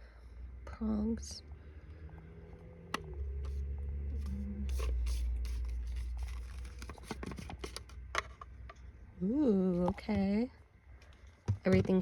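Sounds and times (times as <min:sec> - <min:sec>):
plastic kettle handling rustles: 0:04.7 - 0:08.4.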